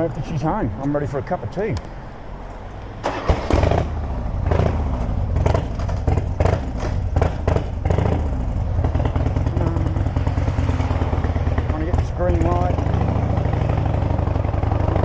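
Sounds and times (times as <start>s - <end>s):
motorcycle engine running: 3.6s - 15.0s.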